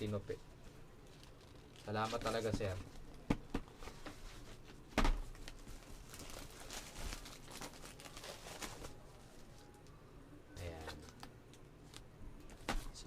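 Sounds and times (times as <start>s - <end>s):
paper rustling and crinkling: 1.0s - 3.0s, 3.8s - 9.7s.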